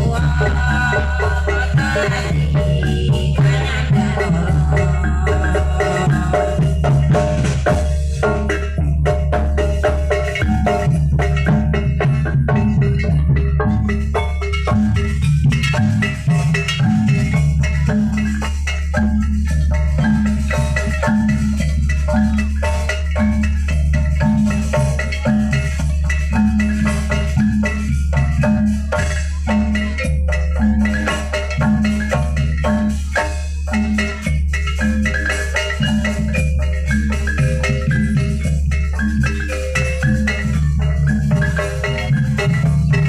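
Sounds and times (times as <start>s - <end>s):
gamelan music: 0.0s - 43.0s.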